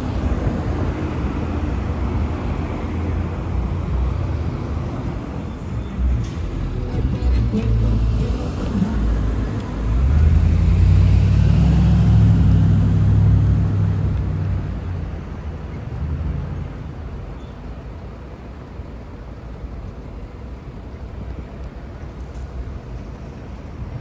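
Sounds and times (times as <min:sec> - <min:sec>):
bus engine rumbling past: 0:00.0 - 0:19.1.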